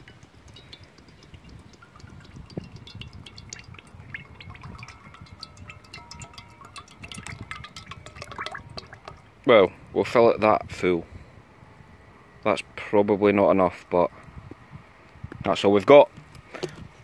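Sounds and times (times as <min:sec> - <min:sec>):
oil glugging and splashing: 0:00.0 - 0:09.4.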